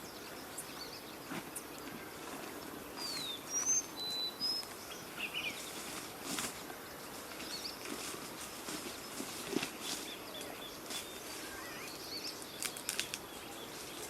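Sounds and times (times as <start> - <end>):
bird chirps: 0.0 - 6.0, 8.9 - 14.0
background hiss: 0.0 - 14.0
whistled bird notes: 3.0 - 5.7
faint clicks: 12.5 - 13.3.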